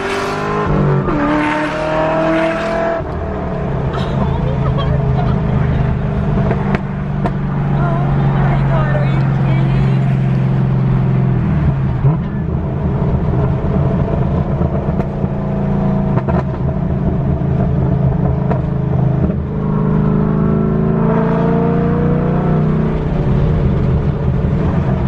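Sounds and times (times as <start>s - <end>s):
car exhaust accelerating: 0.0s - 25.0s.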